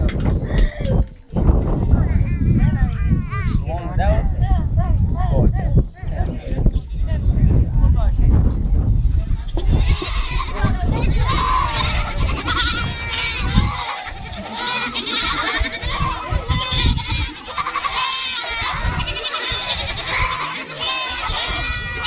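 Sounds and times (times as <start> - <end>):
goats bleating: 0.2 - 1.1, 1.7 - 3.7, 9.2 - 22.0.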